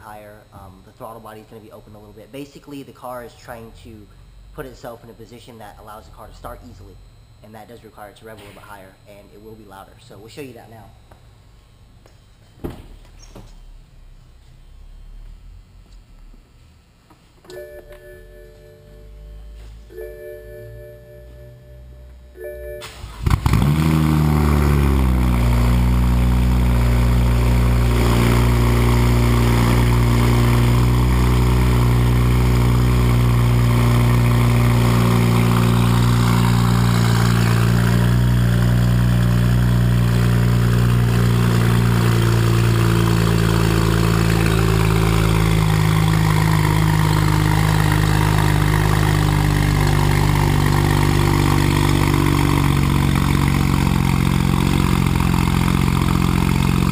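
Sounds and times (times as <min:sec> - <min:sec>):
car engine fast idle: 0:22.8 - 0:56.9.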